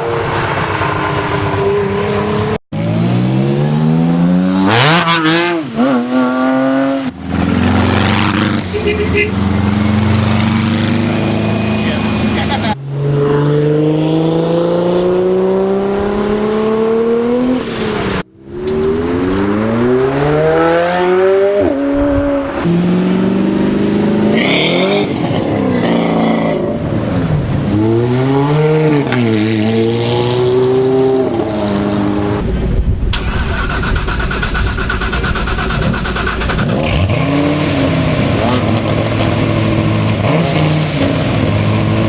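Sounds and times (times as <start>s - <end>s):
cars accelerating hard: 0.0s - 32.4s, 33.1s - 42.0s.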